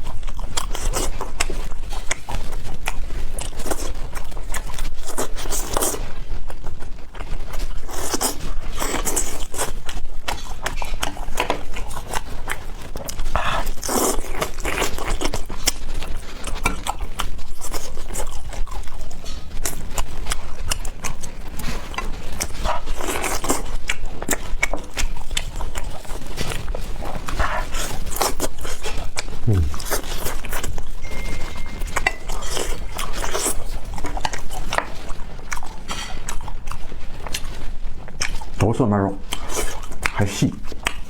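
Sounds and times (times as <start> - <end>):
chewing and lip smacking: 0.0 - 41.0
slurping: 27.2 - 34.6.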